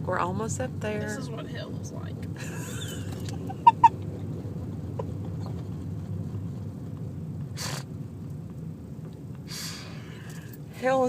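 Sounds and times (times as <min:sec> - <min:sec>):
engine and road rumble inside car: 0:00.0 - 0:11.0
short breathy hiss: 0:07.6 - 0:07.9, 0:09.5 - 0:10.6.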